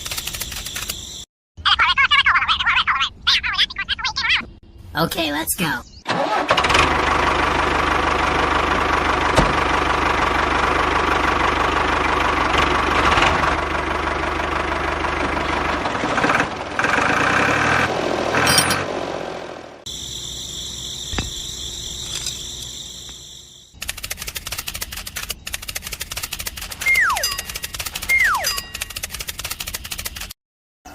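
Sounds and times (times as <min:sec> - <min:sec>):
fast clicking rattle: 0:00.0 - 0:01.0, 0:23.8 - 0:30.4
small motor running: 0:23.7 - 0:30.3.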